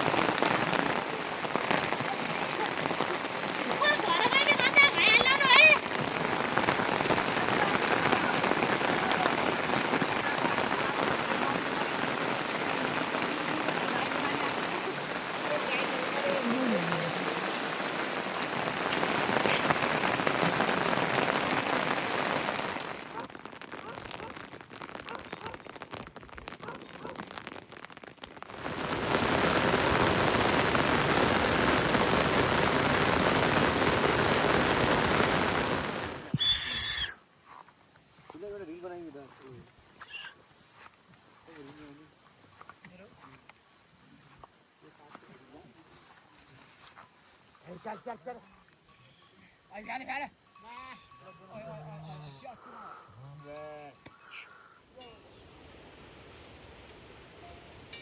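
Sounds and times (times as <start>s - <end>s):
heavy rain falling: 0.0s - 37.1s.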